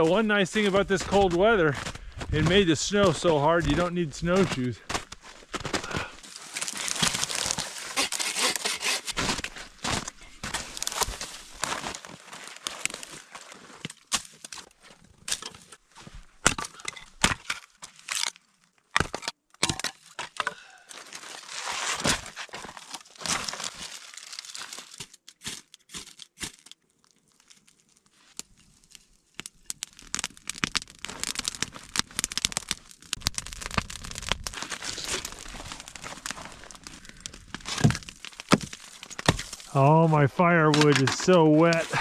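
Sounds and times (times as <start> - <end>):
twigs snapping: 5.8 - 14.7, 29.4 - 39.8.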